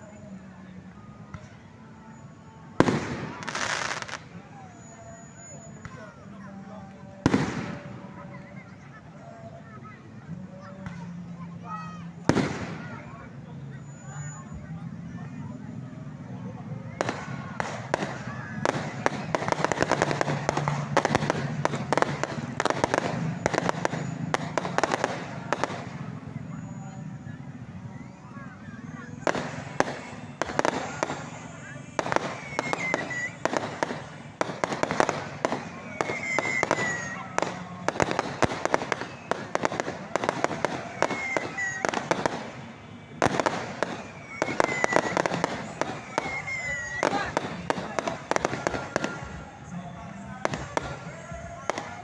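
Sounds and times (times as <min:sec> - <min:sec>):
fireworks crackling pops: 0:01.1 - 0:09.0, 0:10.6 - 0:13.3, 0:16.8 - 0:52.0
high whistling tones: 0:16.6 - 0:52.0.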